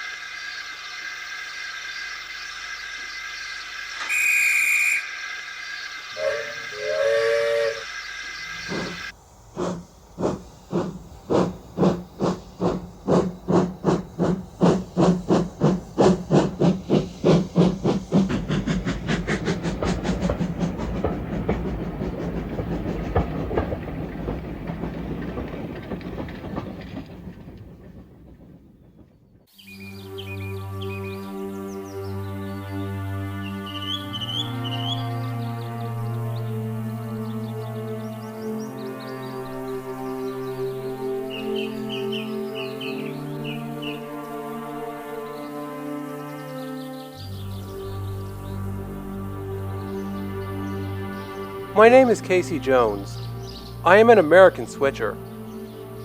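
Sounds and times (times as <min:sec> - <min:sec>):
steam locomotive hissing: 0:00.0 - 0:29.6, 0:30.2 - 0:56.0
locomotive exhaust chuffs: 0:00.0 - 0:56.0
steam whistle: 0:04.0 - 0:05.2, 0:06.1 - 0:09.1, 0:29.8 - 0:51.8.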